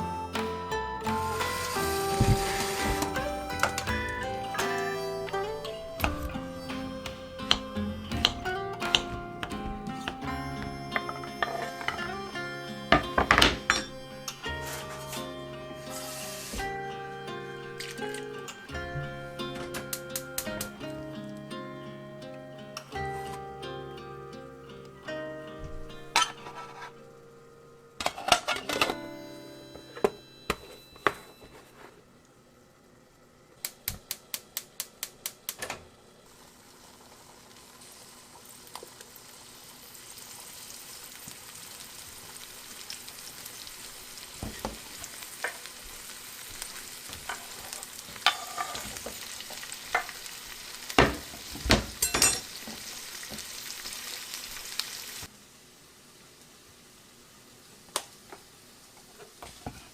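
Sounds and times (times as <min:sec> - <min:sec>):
dishes clinking: 0:00.0 - 0:16.8, 0:48.2 - 0:49.0, 0:51.0 - 0:52.8
food sizzling in a pan: 0:00.0 - 0:32.0, 0:36.2 - 0:59.9.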